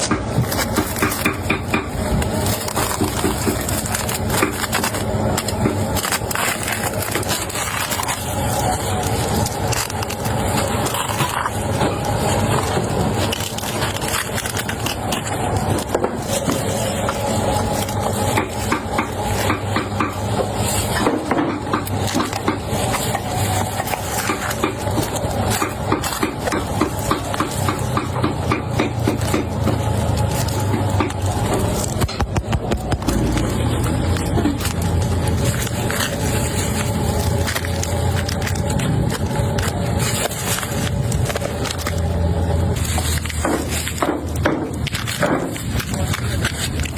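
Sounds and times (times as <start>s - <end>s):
knives chopping meat on wood: 24.2s - 31.2s.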